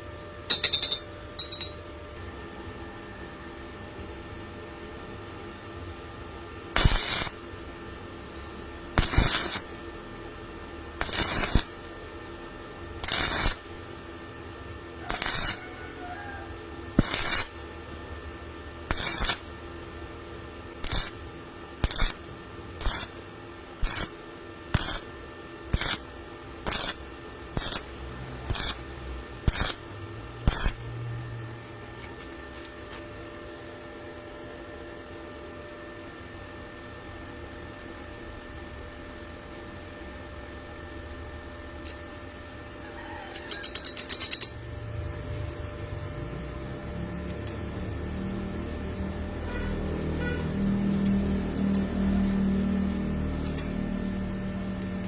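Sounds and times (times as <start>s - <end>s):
electrical hum: 0.0s - 55.0s
welding arc crackling: 6.7s - 7.6s, 8.7s - 10.1s, 10.9s - 12.1s, 12.9s - 14.0s, 15.0s - 17.7s, 18.8s - 19.9s, 20.6s - 31.0s.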